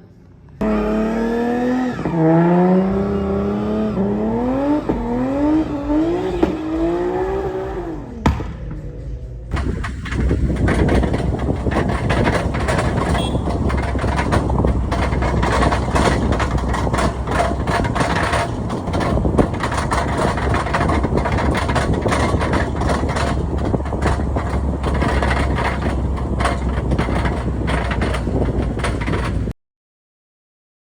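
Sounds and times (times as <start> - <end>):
engines rumbling: 0.0 - 29.6
small knocks and crackles: 9.5 - 29.5.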